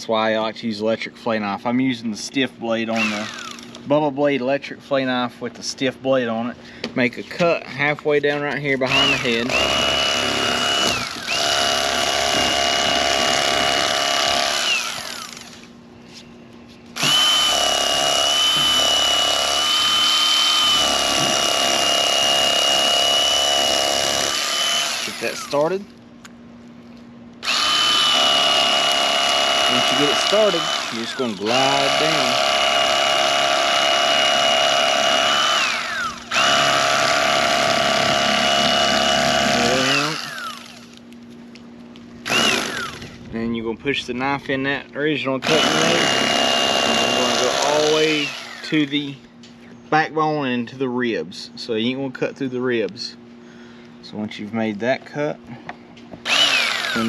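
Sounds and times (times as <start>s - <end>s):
electric fillet knife whining: 8.9s - 15.6s, 17.0s - 25.8s, 27.4s - 41.0s, 42.3s - 43.1s, 45.4s - 48.9s, 56.2s - 57.0s.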